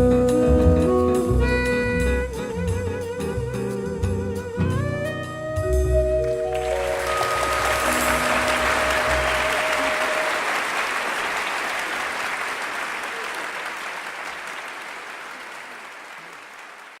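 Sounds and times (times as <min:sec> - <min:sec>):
band final held chord: 0:04.4 - 0:10.5
audience applause and cheering: 0:06.2 - 0:17.0.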